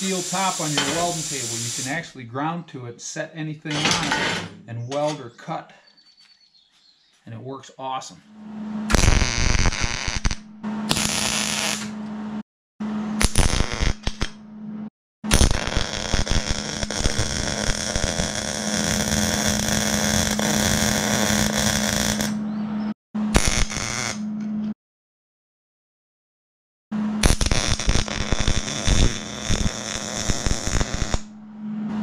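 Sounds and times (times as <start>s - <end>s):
welding arc crackling: 0.0s - 2.1s, 8.9s - 12.0s, 13.2s - 14.4s, 15.3s - 22.4s, 23.4s - 24.2s, 27.2s - 31.4s
steady hum: 8.2s - 14.9s.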